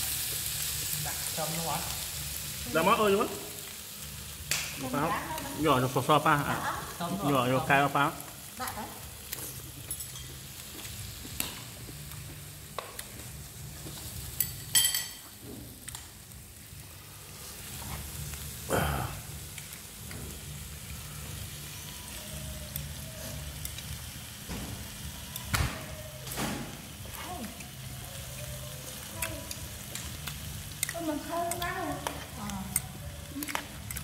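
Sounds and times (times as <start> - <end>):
meat sizzling on a grill: 0.0 - 34.0
utensils clinking: 9.2 - 11.0, 14.4 - 15.4.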